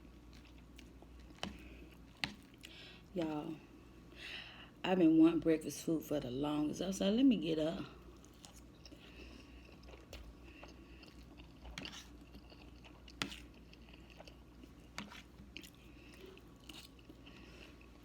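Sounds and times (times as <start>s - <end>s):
person chewing food: 0.0s - 3.4s, 8.1s - 18.0s.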